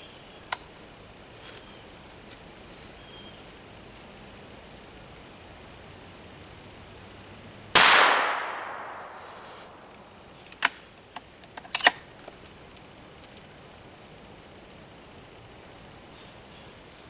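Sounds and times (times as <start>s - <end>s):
rifle shot with echo: 7.8s - 9.9s.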